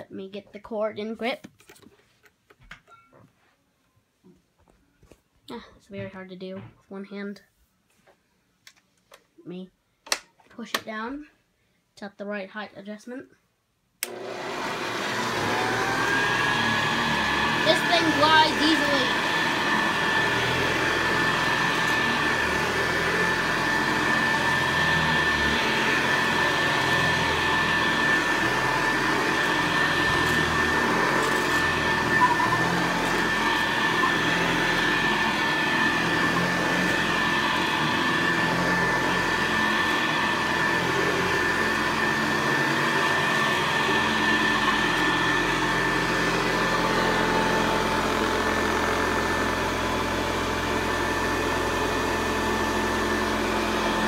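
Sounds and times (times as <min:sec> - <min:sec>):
upright vacuum cleaner running: 0:14.0 - 0:54.0.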